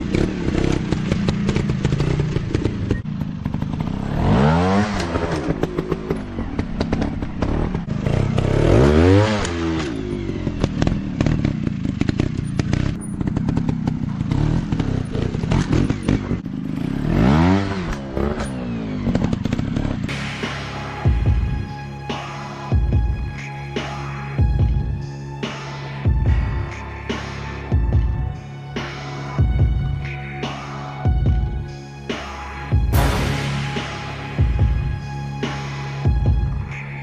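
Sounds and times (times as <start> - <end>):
dirt bike engines revving: 0.0 - 20.2.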